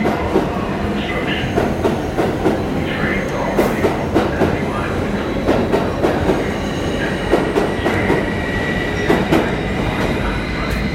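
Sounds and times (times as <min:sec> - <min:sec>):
train rumble: 0:00.0 - 0:10.9
train wheels clacking over joints: 0:03.5 - 0:10.9
high wheel squeal: 0:08.0 - 0:10.9.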